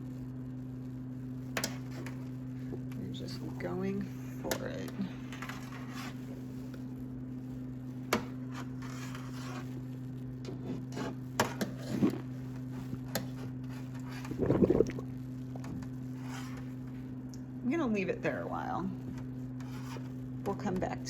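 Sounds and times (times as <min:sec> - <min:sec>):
steady low hum: 0:00.0 - 0:21.0
water sloshing in sink: 0:14.0 - 0:16.4.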